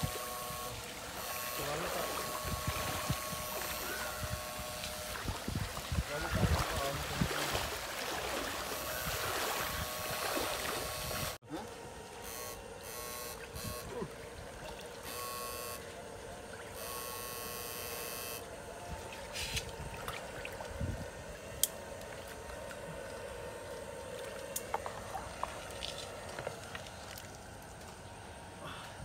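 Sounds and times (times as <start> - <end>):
electric shocker buzzing: 0.0 - 19.8
trickling water: 0.4 - 11.4, 13.5 - 15.2, 22.0 - 28.2.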